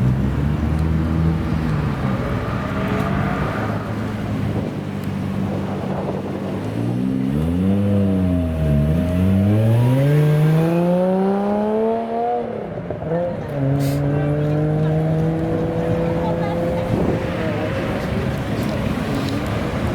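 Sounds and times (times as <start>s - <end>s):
car engine accelerating: 0.0s - 19.9s.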